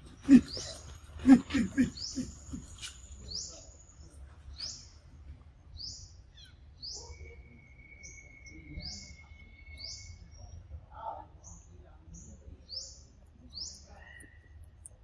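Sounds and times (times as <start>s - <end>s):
thin steady whistle: 7.0s - 10.3s.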